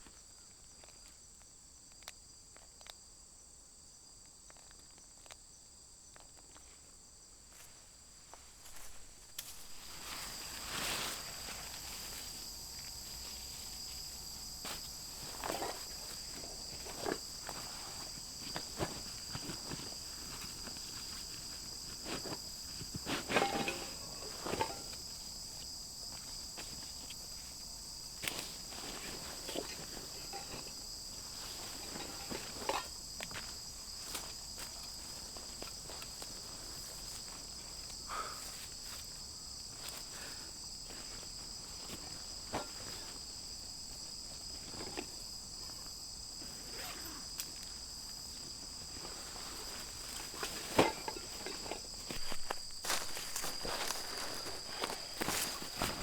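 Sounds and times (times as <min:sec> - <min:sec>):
insects chirring: 0:00.0 - 0:56.0
light knocks and rustles: 0:22.0 - 0:25.1.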